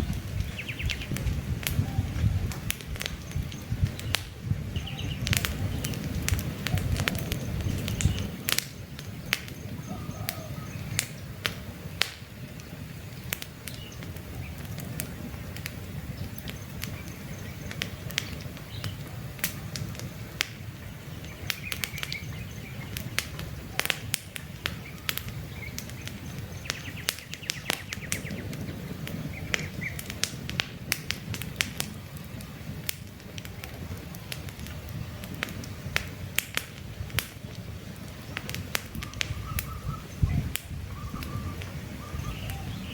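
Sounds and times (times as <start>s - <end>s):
campfire crackling and popping: 0.0s - 42.9s
low rumble of burning: 0.0s - 42.9s
faint bird chirps: 39.0s - 42.9s.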